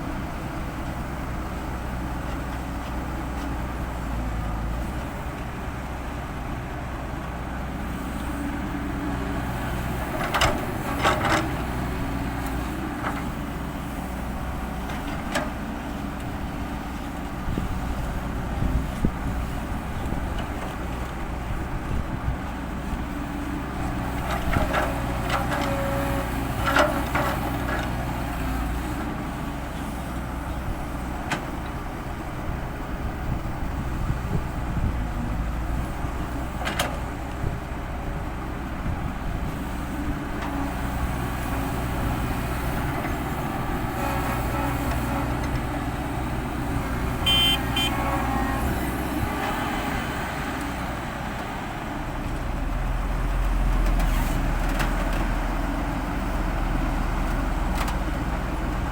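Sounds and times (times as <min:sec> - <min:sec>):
diesel machinery running: 0:00.0 - 0:58.9
short high beep: 0:47.2 - 0:48.0.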